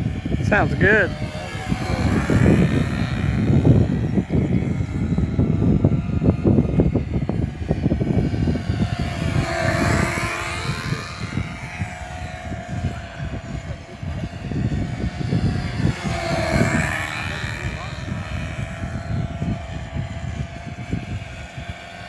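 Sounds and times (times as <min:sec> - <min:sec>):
gusty low rumble: 0:00.0 - 0:22.0
model airplane engines: 0:00.0 - 0:22.0.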